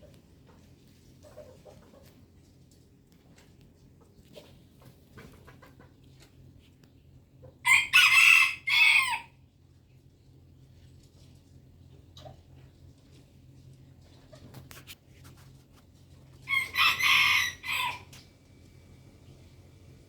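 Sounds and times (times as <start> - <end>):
rooster crowing: 7.6 - 9.4, 16.5 - 18.2.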